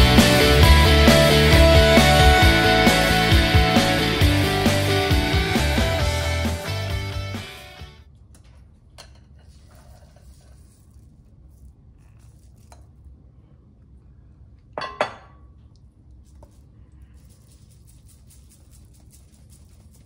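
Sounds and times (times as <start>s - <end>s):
flour sifting hiss: 9.5s - 12.8s, 16.2s - 20.0s.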